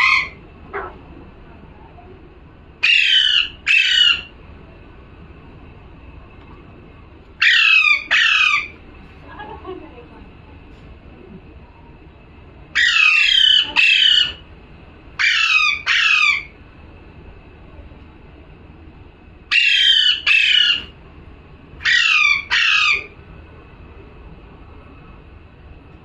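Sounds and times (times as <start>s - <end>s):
parrot squawking: 0.0s - 1.0s, 2.8s - 4.3s, 7.4s - 8.8s, 12.8s - 14.4s, 15.2s - 16.6s, 19.5s - 20.9s, 21.8s - 23.2s.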